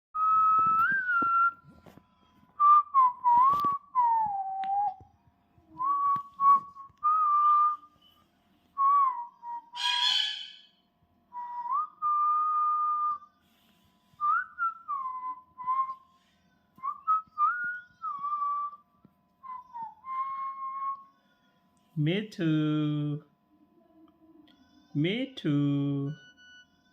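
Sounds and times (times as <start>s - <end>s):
parrot whistling: 9.5s - 10.8s
parrot harsh call: 9.8s - 10.8s.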